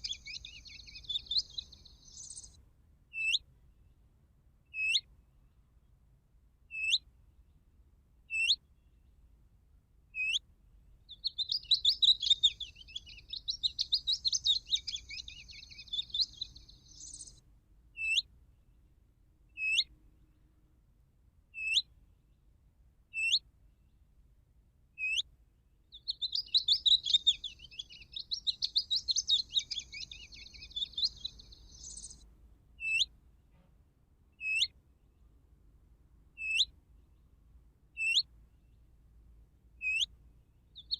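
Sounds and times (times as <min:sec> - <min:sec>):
sharp downward bird notes: 0:00.0 - 0:02.5, 0:11.2 - 0:17.2, 0:26.1 - 0:32.2
twittering bird song: 0:00.0 - 0:02.6, 0:03.2 - 0:04.1, 0:04.7 - 0:05.1, 0:06.7 - 0:07.6, 0:08.3 - 0:09.3, 0:10.2 - 0:10.4, 0:11.0 - 0:17.4, 0:18.0 - 0:18.3, 0:19.5 - 0:20.4, 0:21.6 - 0:22.5, 0:23.1 - 0:24.0, 0:25.0 - 0:25.3, 0:25.9 - 0:33.2, 0:34.4 - 0:35.4, 0:36.3 - 0:39.2, 0:39.8 - 0:40.9.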